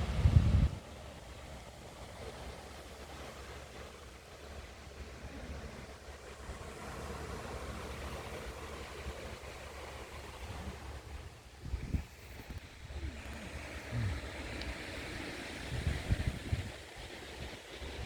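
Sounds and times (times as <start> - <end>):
wind rumbling on microphone: 0.0 - 1.3, 5.3 - 18.0
sea surf washing: 0.0 - 18.0.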